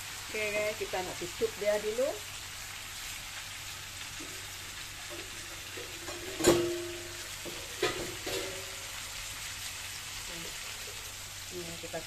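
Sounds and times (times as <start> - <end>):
crabs sizzling in a wok: 0.0 - 12.0
metal clank ringing: 6.1 - 7.2.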